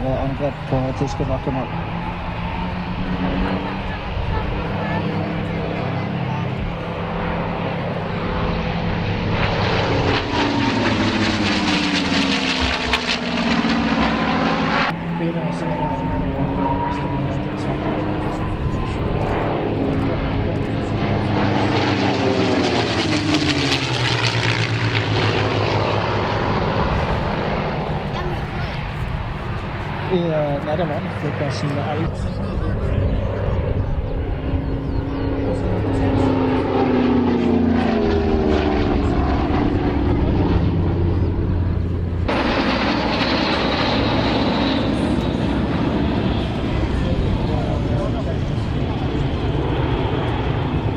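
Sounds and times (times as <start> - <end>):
propeller aircraft flying past: 0.0 - 50.9.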